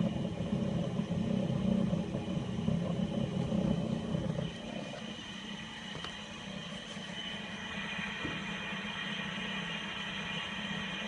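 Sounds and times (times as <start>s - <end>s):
washing machine rough rumbling: 0.0s - 11.0s.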